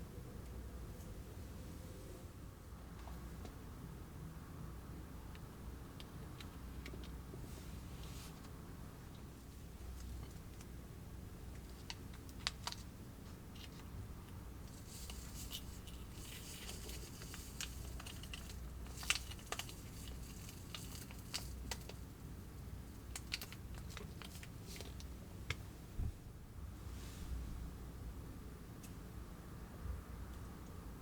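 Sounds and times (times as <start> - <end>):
plastic packets clicking and tapping: 11.5 - 12.9, 14.7 - 22.1, 23.0 - 25.6
plastic crinkling and tearing: 14.7 - 22.0.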